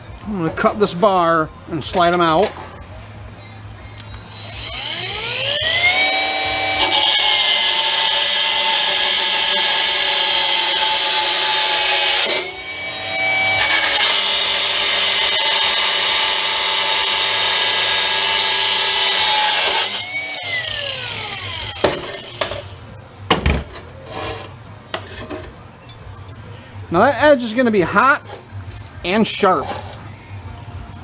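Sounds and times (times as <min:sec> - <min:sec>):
cutoff wheel cutting metal: 0:04.3 - 0:22.8
metal clinks and knocks: 0:28.6 - 0:29.1.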